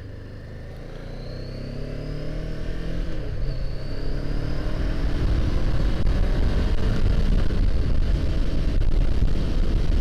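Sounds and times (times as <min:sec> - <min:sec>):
motorcycle engine accelerating: 0:00.0 - 0:10.0
wind rumble on microphone: 0:04.4 - 0:10.0.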